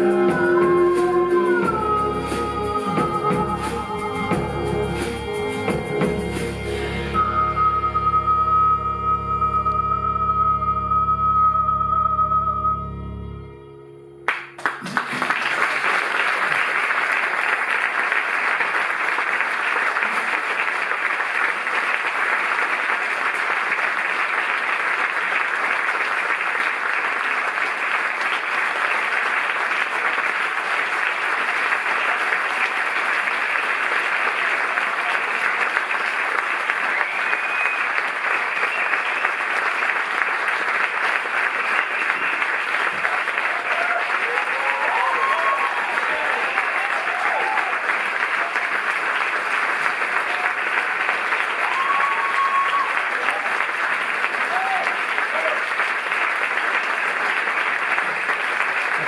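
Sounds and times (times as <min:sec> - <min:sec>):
audience applauding: 0:14.3 - 0:59.0.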